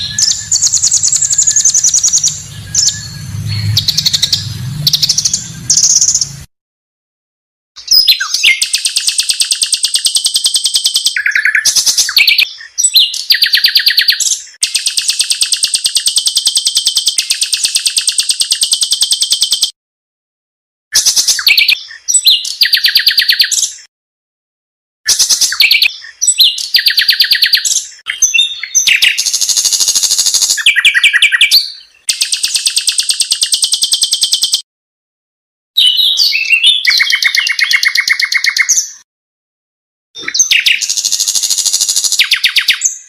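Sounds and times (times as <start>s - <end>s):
bird song fast trills: 0.0s - 6.5s, 7.8s - 19.8s, 21.0s - 23.9s, 25.1s - 34.6s, 35.8s - 39.0s, 40.2s - 43.0s.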